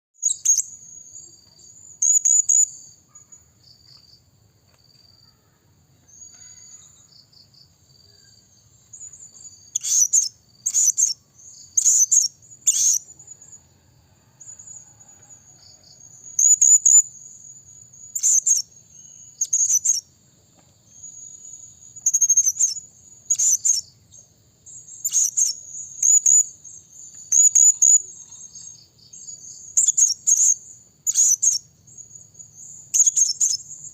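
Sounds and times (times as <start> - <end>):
thin high bird trill: 9.0 - 13.6, 24.7 - 31.7
parrot shrill high calls: 11.8 - 13.0.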